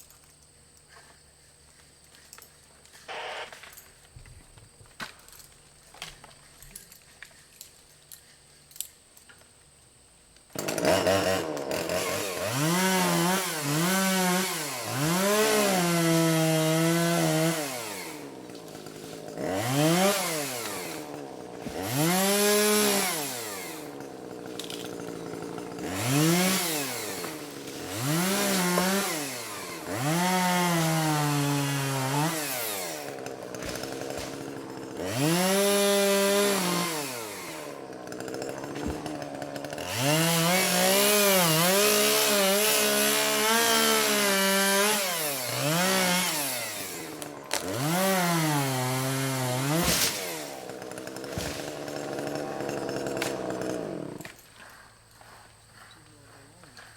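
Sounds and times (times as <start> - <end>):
chainsaw cutting and revving: 3.1 - 3.7, 10.5 - 54.5.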